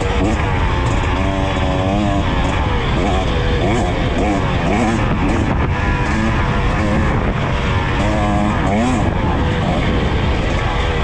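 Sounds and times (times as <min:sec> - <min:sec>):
two-stroke motorcycle engine revving: 0:00.0 - 0:11.0.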